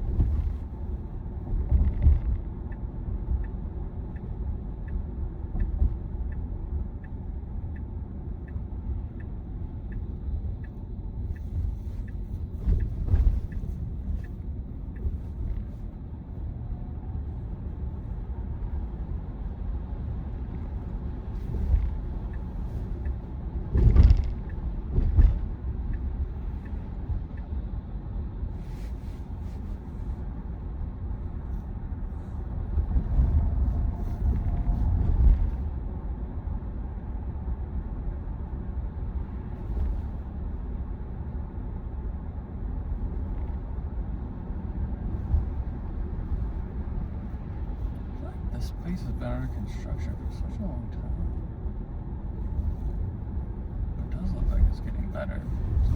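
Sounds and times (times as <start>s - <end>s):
turn signal ticking: 0.0s - 36.1s
road and tyre rumble: 0.0s - 55.9s
car thumping over bumps: 23.6s - 25.6s.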